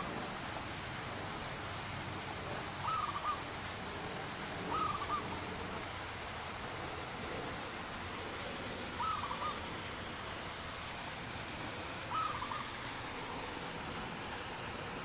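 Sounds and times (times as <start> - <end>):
steady outdoor hiss: 0.0 - 15.0
dove cooing: 2.5 - 3.5, 4.6 - 5.7, 8.4 - 9.8, 12.0 - 13.6.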